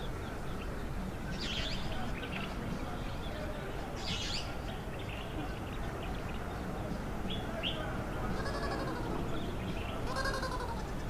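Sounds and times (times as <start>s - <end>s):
drawn-out bleating calls: 8.3s - 9.2s, 10.0s - 11.0s.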